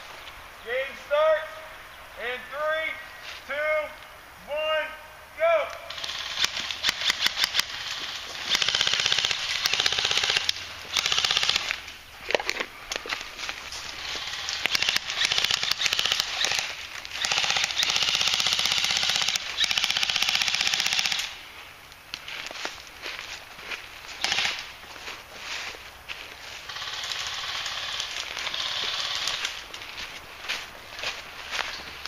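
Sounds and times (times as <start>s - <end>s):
airsoft rifles firing full auto: 5.9s - 11.8s, 14.0s - 21.4s, 24.2s - 24.6s, 26.6s - 29.5s.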